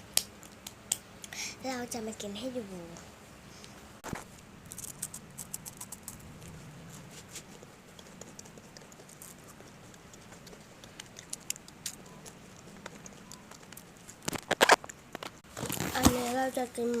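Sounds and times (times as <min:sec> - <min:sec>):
crunchy snack being chewed: 0:04.7 - 0:06.6, 0:07.4 - 0:15.9.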